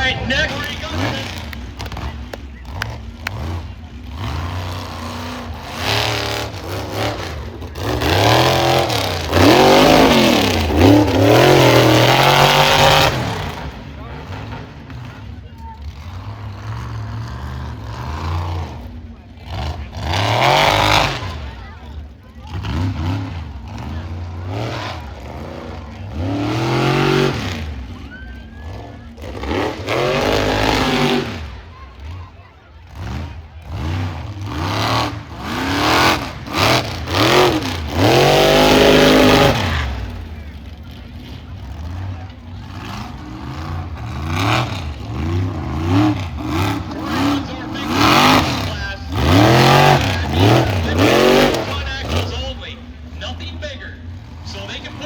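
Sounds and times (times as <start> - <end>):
monster truck engine revving: 0.0 - 55.0
engine knocks: 0.2 - 5.0.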